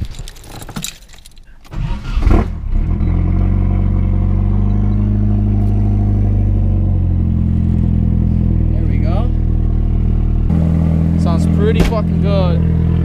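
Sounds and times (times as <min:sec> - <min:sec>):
car engine idling: 0:02.6 - 0:13.0.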